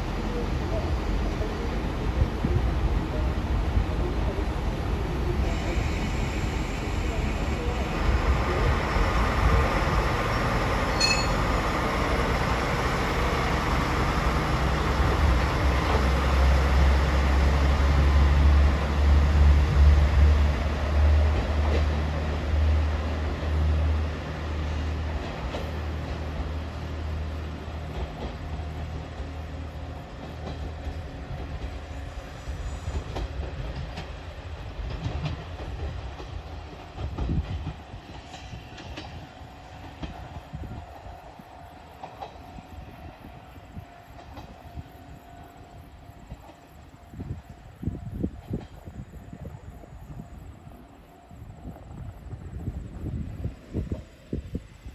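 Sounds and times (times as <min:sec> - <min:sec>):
railcar engine drone: 0:00.0 - 0:54.9
train wheels clattering over rail joints: 0:32.8 - 0:40.8.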